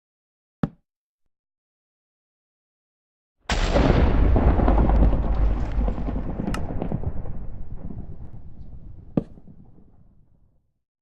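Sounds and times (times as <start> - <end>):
deep blast-like rumble: 3.5 - 10.4
sharp cracks: 3.5 - 10.4.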